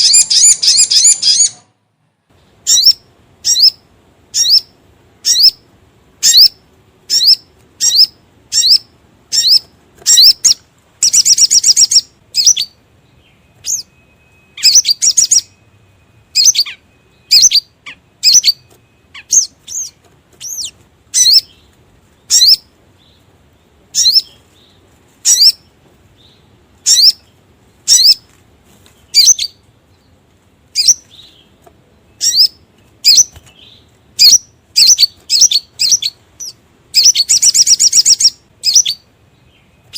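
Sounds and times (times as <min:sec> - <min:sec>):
bird's rattling trill: 0:00.0 - 0:01.6.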